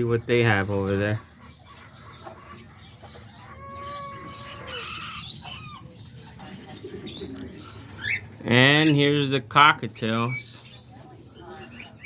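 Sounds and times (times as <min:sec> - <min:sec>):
bird chirps and squeaks: 0:01.4 - 0:09.0.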